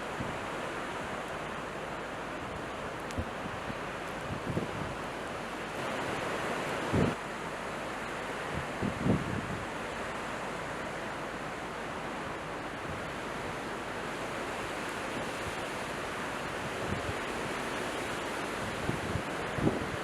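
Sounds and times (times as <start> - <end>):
strong gusty wind: 3.0 - 7.2, 8.4 - 9.9, 12.8 - 20.0
wind buffeting microphone: 8.6 - 9.7.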